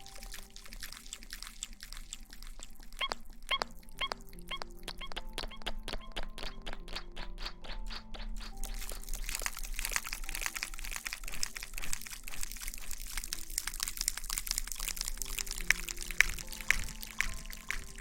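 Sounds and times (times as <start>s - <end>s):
faint background music: 0.0s - 18.0s
wet crackling of hair scrubbing: 0.0s - 18.0s
even tapping: 3.0s - 13.3s, 15.2s - 18.0s.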